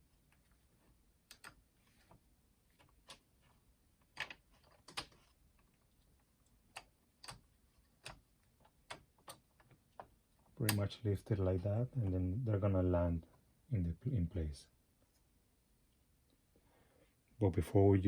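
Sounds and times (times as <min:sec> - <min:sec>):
plastic parts clicking and tapping: 0:02.7 - 0:10.9.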